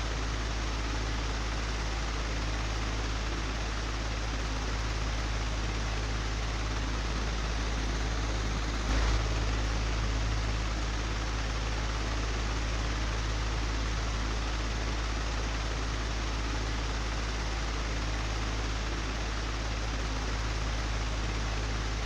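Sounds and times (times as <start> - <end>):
low hum: 4.6 - 15.0
electric fan rushing: 5.0 - 13.9.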